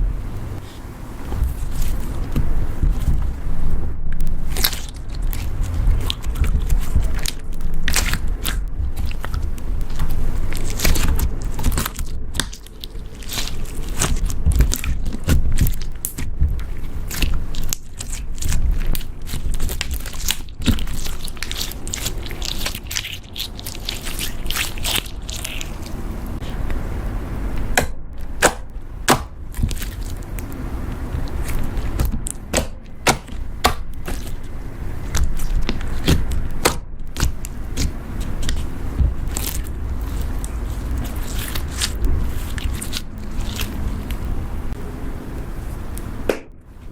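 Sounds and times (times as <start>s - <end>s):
slime squeezed by hand: 4.4s - 26.6s.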